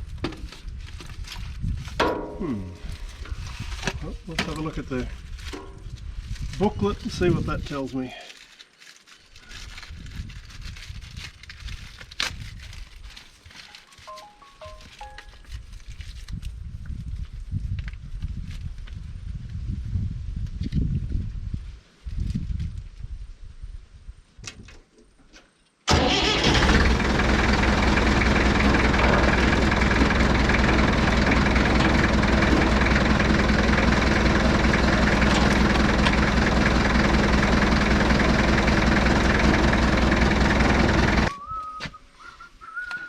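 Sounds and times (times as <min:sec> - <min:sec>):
tractor engine running: 0:25.9 - 0:41.3.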